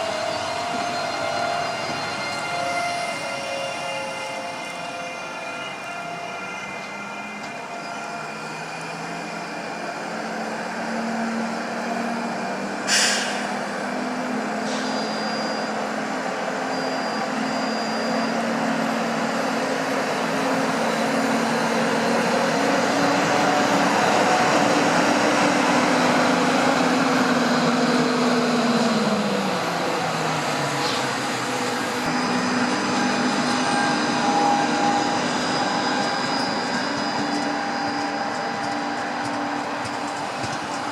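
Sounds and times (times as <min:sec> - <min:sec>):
sharp hiss: 0:12.9 - 0:13.6
train motors humming: 0:18.3 - 0:40.9.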